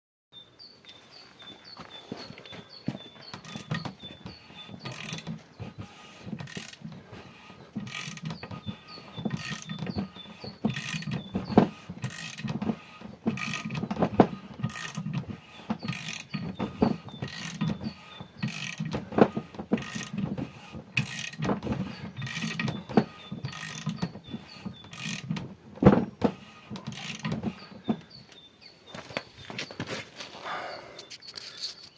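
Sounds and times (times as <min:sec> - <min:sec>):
mechanical clacks and knocks: 0:03.3 - 0:28.2.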